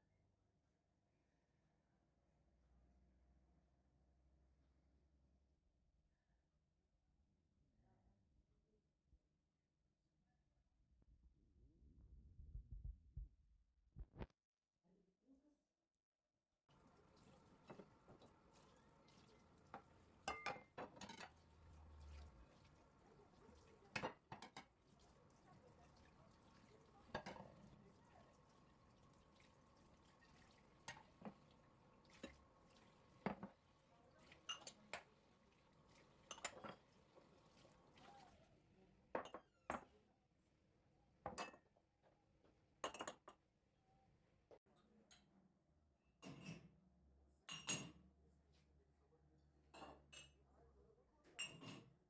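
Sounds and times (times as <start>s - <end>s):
dishes and cutlery clinking: 16.7s - 38.2s
faint steady hum: 16.7s - 38.4s.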